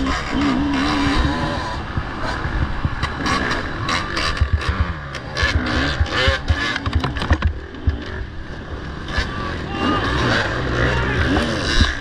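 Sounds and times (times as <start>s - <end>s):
motorcycle engine revving: 0.0s - 12.0s
knocks and rattles: 2.0s - 8.2s.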